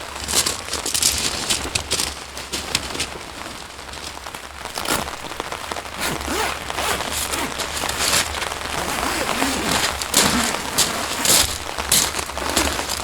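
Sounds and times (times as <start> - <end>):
rain falling: 2.6 - 13.0.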